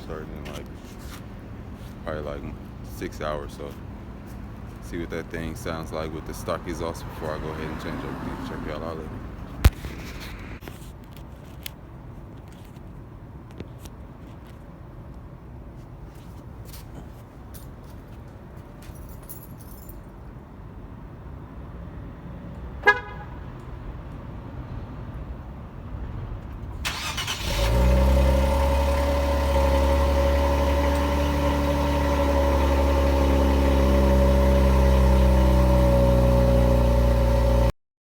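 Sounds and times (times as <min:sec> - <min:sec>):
car engine starting and idling: 0:26.4 - 0:37.7.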